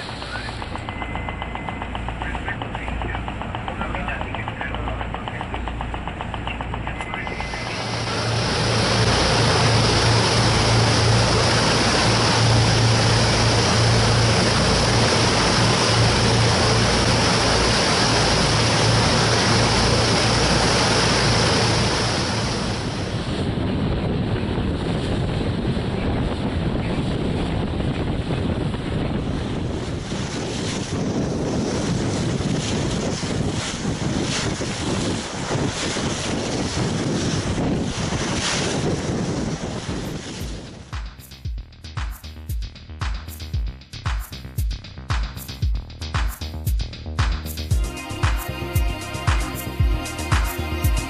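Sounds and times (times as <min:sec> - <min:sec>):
rushing water: 0:00.0 - 0:00.6, 0:06.9 - 0:23.6, 0:26.0 - 0:41.4, 0:47.2 - 0:51.0
boat engine hum: 0:00.0 - 0:51.0
wind: 0:00.0 - 0:51.0
water splashing: 0:02.4 - 0:23.3.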